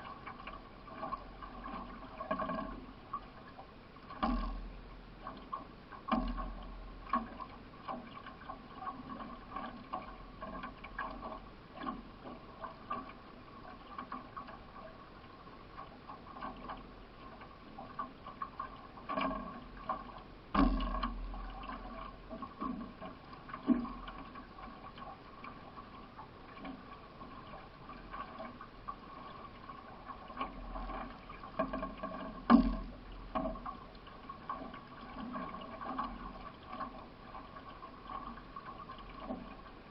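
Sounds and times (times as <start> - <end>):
paddle strokes splashing water: 0.0 - 39.9
paddle knocks: 4.1 - 13.2, 16.4 - 25.2, 26.5 - 39.7.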